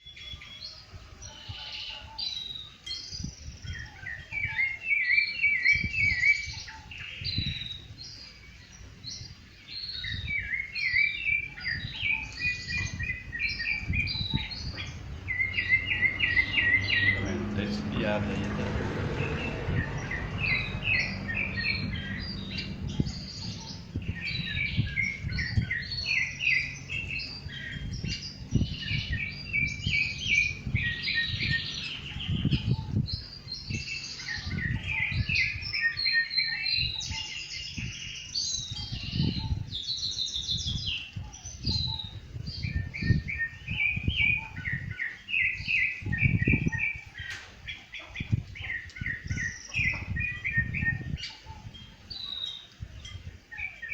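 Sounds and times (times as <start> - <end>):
thrush singing: 10.1 - 38.1
low rumble: 11.8 - 33.9.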